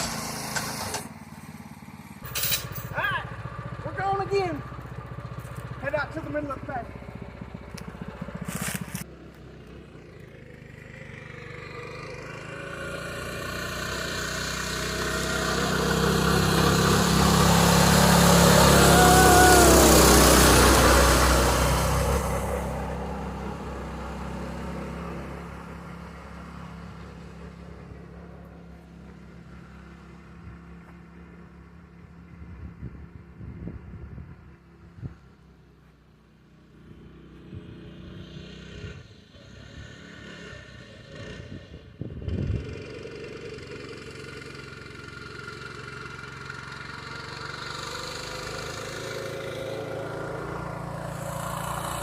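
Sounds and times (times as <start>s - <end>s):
pickup truck engine driving past: 6.9s - 32.0s.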